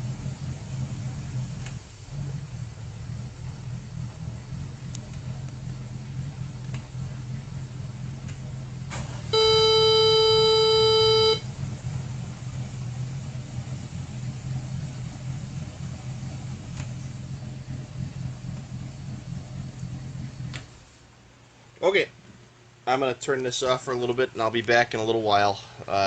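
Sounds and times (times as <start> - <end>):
boat engines idling: 0.0 - 21.7
loud steady beep: 9.3 - 11.5.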